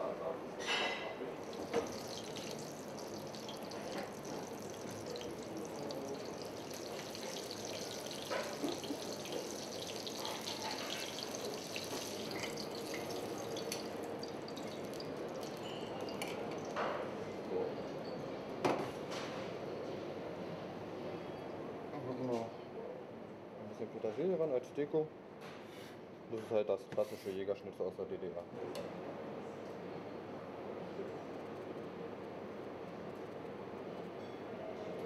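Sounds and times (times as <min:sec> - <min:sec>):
food sizzling in hot fat: 0:01.4 - 0:16.8.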